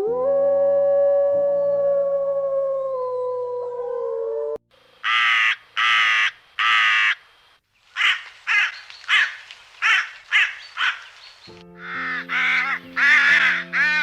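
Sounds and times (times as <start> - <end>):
bird calling: 5.0 - 14.0.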